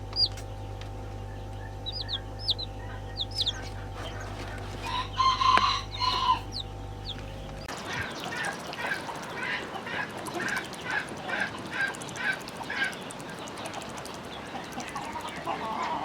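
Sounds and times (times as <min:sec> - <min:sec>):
chickens calling: 0:00.0 - 0:16.0
drawn-out chicken call: 0:01.9 - 0:13.0, 0:14.4 - 0:16.0.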